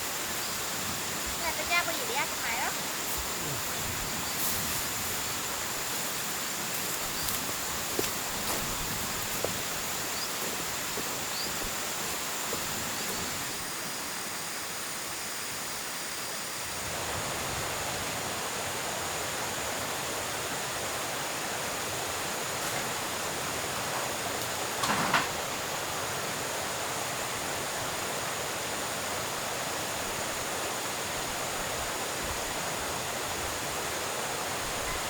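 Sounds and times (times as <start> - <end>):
steady outdoor rushing noise: 0.0 - 13.9.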